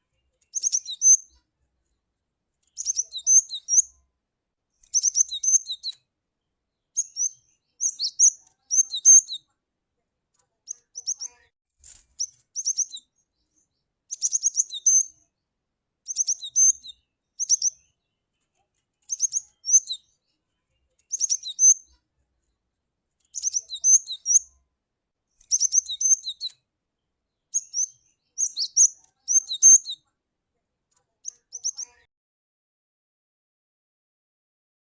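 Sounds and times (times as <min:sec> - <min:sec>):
bird chirping: 0:00.0 - 0:02.0, 0:02.6 - 0:04.0, 0:04.8 - 0:09.6, 0:10.4 - 0:22.6, 0:23.2 - 0:24.6, 0:25.3 - 0:30.1, 0:31.0 - 0:32.1.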